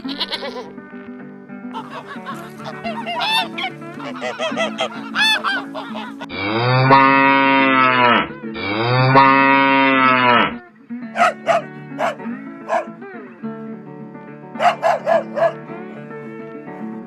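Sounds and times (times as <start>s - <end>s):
background guitar music: 0.0s - 17.0s
dog barking: 1.8s - 6.3s, 11.2s - 12.9s, 14.6s - 15.7s.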